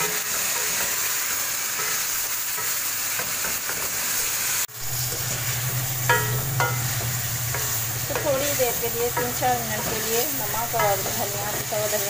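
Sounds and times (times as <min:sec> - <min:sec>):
chicken sizzling in hot oil: 0:00.0 - 0:12.0
spatula stirring and scraping: 0:04.8 - 0:12.0.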